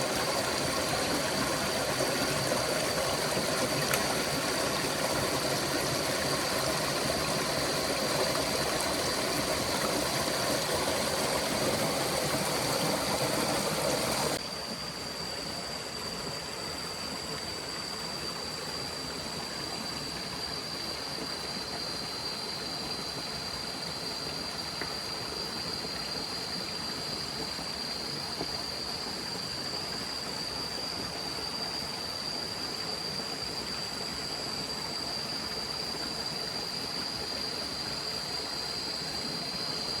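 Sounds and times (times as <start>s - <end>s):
stream rushing: 0.0s - 14.4s.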